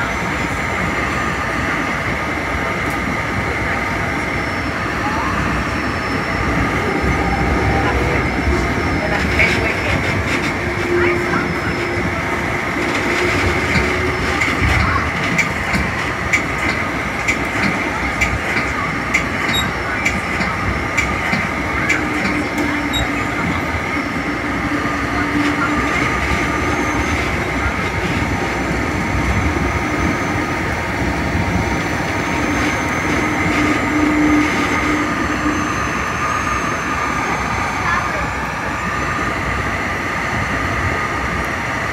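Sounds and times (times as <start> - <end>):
train wheels rumbling on rails: 0.0 - 41.9
wheels clicking over rail joints: 12.8 - 23.2.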